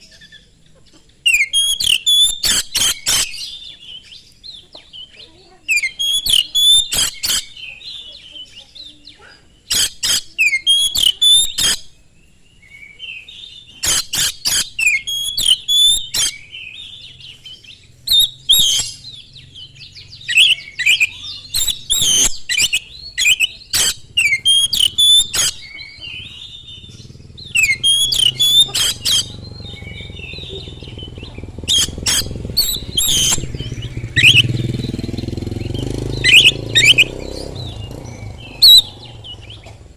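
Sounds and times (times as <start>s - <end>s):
bird singing whistled notes: 0.0s - 39.7s
low rumble: 29.0s - 39.7s.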